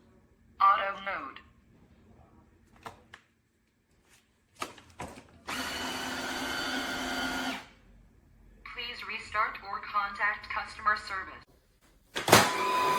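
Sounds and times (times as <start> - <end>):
vacuum motor whining: 5.5 - 7.7, 12.3 - 12.9.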